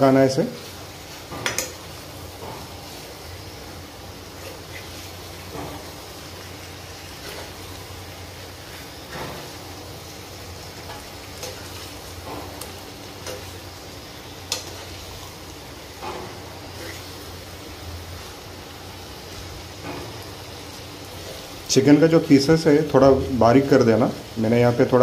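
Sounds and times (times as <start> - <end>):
chicken sizzling in a frying pan: 0.0 - 25.0
metal spatula scraping pan: 16.1 - 17.3.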